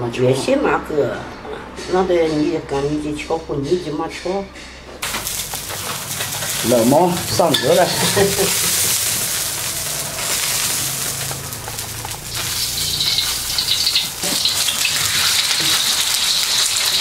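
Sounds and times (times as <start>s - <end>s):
hot oil sizzling in a wok: 5.0s - 17.0s.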